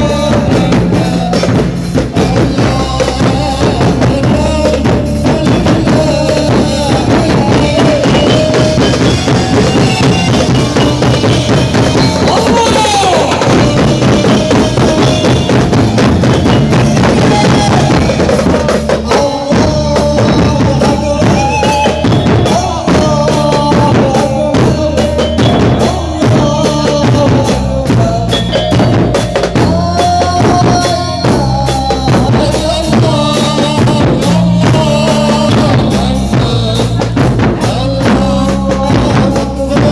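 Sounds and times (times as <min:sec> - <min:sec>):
music with drum beat: 0:00.0 - 0:39.9.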